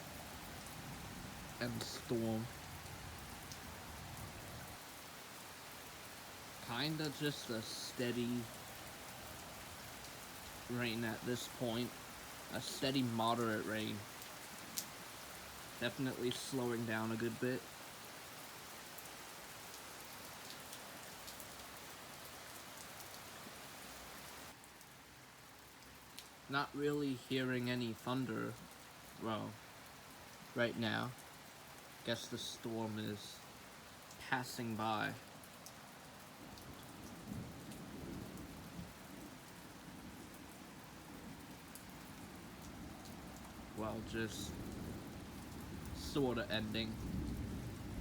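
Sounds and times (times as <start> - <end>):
rain falling: 0.0 - 48.0
raindrop ticks: 3.4 - 3.8, 8.4 - 17.7, 19.7 - 22.3, 25.8 - 26.5, 30.3 - 48.0.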